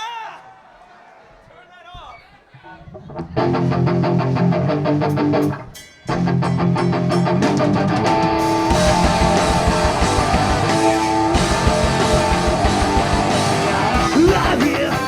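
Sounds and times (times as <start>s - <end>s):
drums: 2.5s - 15.0s
electric guitar strumming chords: 3.4s - 15.0s
live rock band playing: 3.4s - 15.0s.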